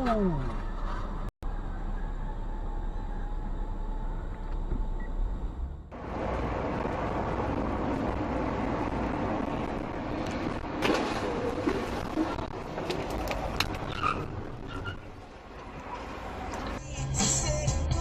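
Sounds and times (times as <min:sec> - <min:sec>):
car driving road noise: 0:03.2 - 0:17.0.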